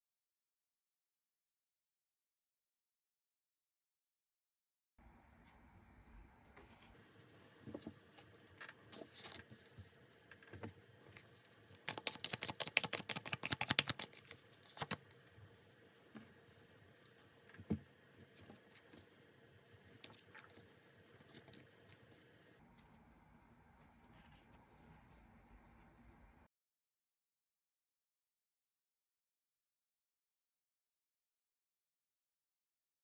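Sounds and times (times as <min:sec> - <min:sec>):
cards shuffling: 0:11.7 - 0:15.2
cards tapping down: 0:11.8 - 0:15.0.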